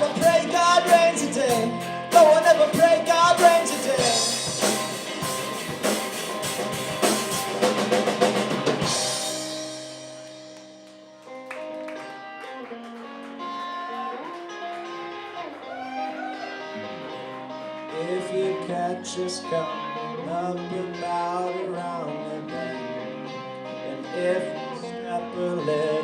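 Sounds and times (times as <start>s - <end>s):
drum kit: 0.0s - 11.0s
picked guitar with bent notes: 0.0s - 26.0s
rock guitars playing: 0.0s - 26.0s.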